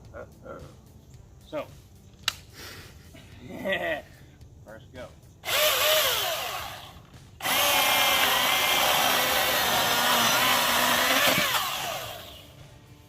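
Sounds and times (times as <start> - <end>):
chainsaw cutting a log: 5.4 - 12.6
cordless chainsaw whirring: 5.4 - 12.6.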